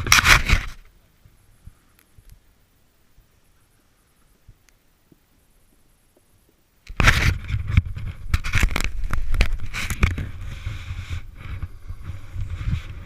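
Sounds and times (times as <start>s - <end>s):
snowboard scraping over snow: 7.0s - 13.0s.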